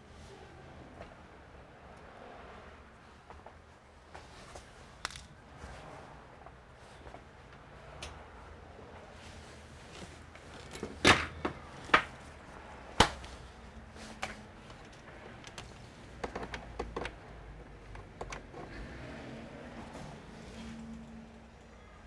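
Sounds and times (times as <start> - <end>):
sharp clicks and knocks: 14.1 - 18.7.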